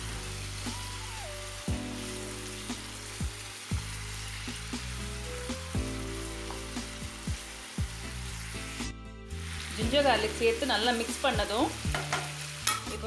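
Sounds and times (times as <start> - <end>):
chicken sizzling in oil: 0.0 - 13.0
spatula knocking against pan: 11.9 - 12.8.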